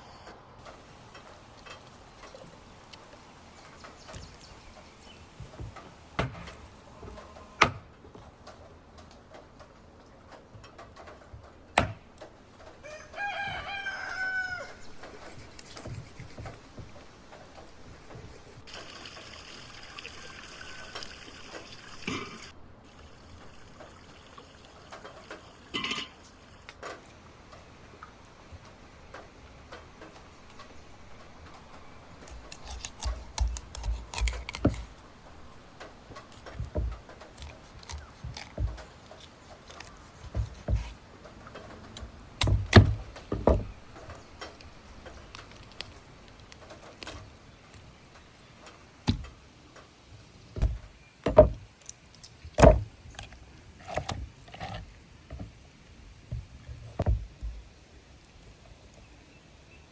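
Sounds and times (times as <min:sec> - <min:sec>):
rooster crowing: 0:12.8 - 0:14.9.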